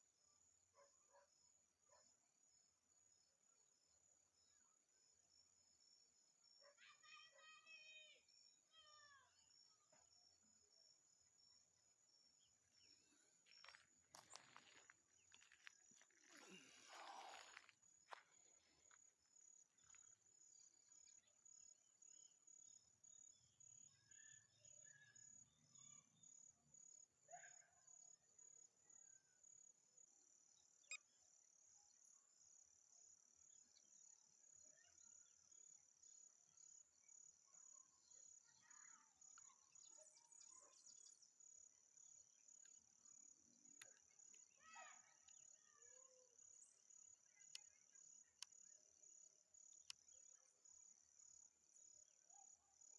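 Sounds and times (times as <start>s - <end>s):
crickets trilling: 13.5s - 18.2s.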